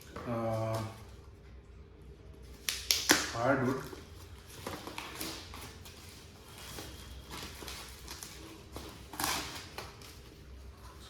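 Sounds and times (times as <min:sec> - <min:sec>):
packaging rustling: 0:03.7 - 0:11.0.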